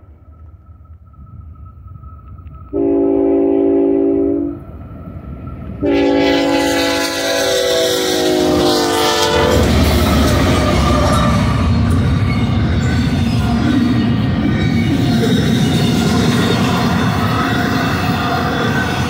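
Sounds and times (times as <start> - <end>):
freight train rumbling past: 0.0 - 19.0
locomotive horn blowing: 2.7 - 4.6, 5.8 - 11.1.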